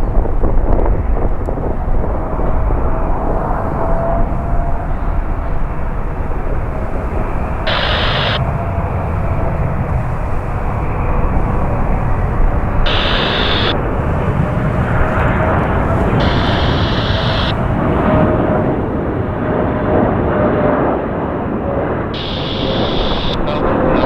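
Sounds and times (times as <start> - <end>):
faint steady whine: 0.0 - 19.5, 22.1 - 24.0
jet engines rumbling: 0.0 - 24.0
high-pitched hiss burst: 7.7 - 8.4, 12.9 - 13.8, 16.2 - 17.5, 22.2 - 23.4.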